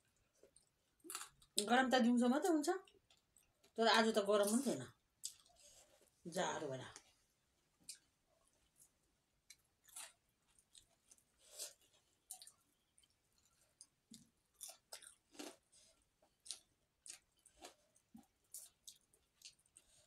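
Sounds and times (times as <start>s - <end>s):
chewing and mouth smacks: 7.8s - 20.0s.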